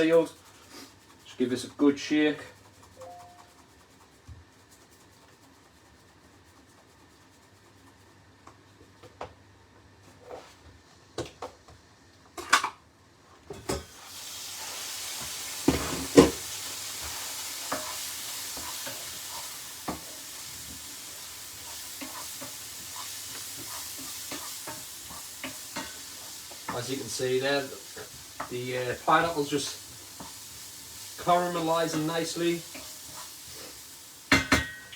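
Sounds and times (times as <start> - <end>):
fruit sizzling in a pan: 0.0 - 1.3, 13.7 - 34.9
stirring scrapes: 0.0 - 8.2, 15.6 - 33.8
utensil knocking on pan: 34.3 - 34.9.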